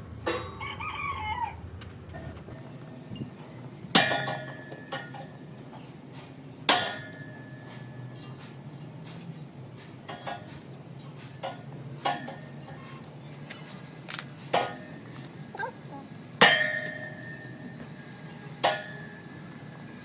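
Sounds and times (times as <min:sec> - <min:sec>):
metal striking metal: 0:16.4 - 0:17.4.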